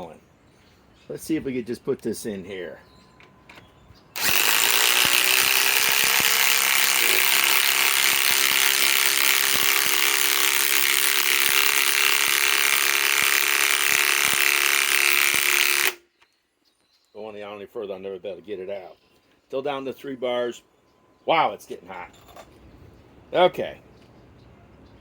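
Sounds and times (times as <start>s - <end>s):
impact wrench hammering: 4.2s - 16.0s.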